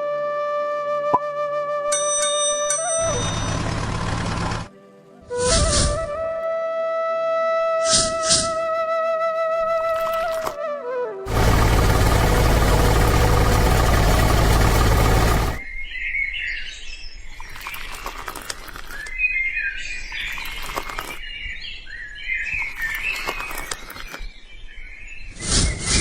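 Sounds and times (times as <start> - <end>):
loud humming machine: 3.4 - 4.7, 11.3 - 15.6
birds chirping: 11.3 - 16.1.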